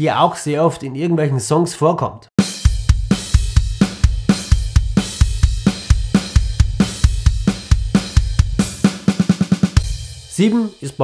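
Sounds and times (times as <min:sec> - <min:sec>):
drum kit beat: 0:02.4 - 0:11.0.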